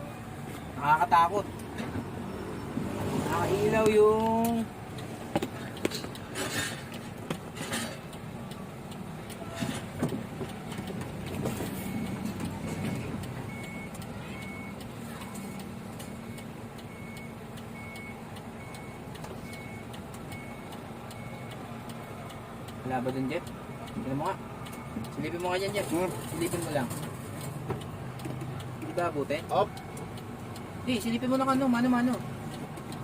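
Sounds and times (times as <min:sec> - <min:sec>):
truck diesel engine running: 0:00.0 - 0:33.0
engine knocks: 0:05.0 - 0:08.2
high warning beeps: 0:11.2 - 0:22.1, 0:22.8 - 0:27.5, 0:28.6 - 0:32.2.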